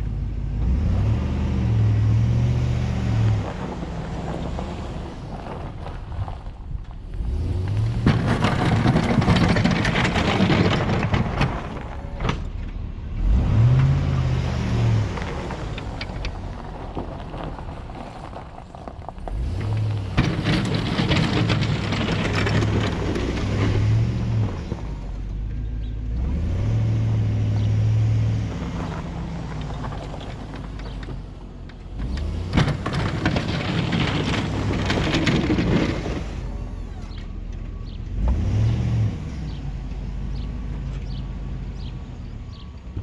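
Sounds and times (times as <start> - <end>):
truck engine revving: 0.0 - 6.1, 7.0 - 12.5, 13.1 - 18.4, 19.1 - 25.4, 26.0 - 37.2, 37.8 - 43.0
tyres churning snow: 0.0 - 25.4, 26.1 - 37.4.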